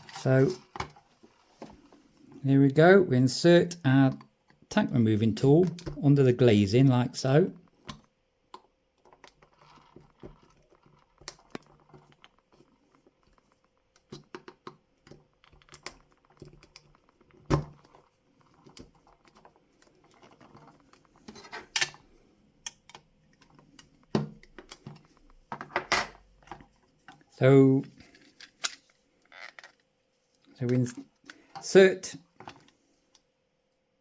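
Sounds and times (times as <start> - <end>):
tool scraping plastic: 0.0 - 1.9, 9.0 - 22.1.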